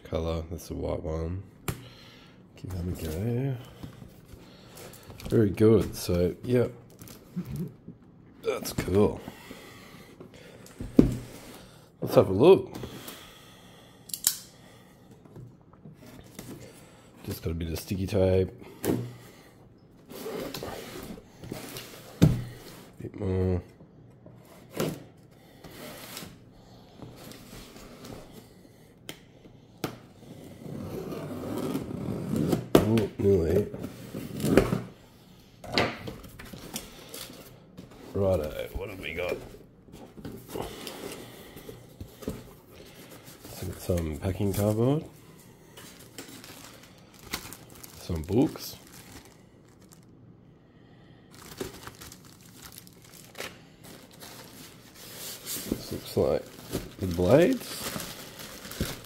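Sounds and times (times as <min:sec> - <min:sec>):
packaging rustling and crinkling: 0:40.1 - 0:50.2, 0:51.2 - 0:59.0.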